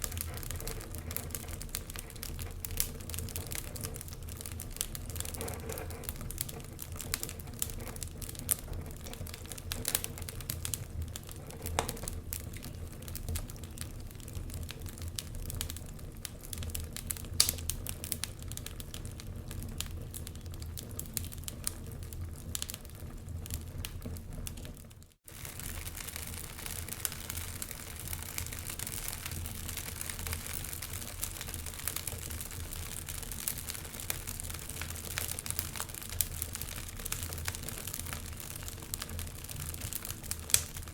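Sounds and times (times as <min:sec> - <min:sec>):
logs crackling and popping in fireplace: 0:00.0 - 0:40.9.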